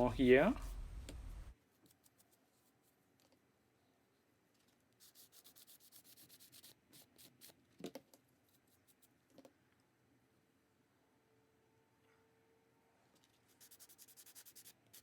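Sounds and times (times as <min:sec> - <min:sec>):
sanding block scrubbing: 0:05.0 - 0:07.5, 0:13.6 - 0:15.0.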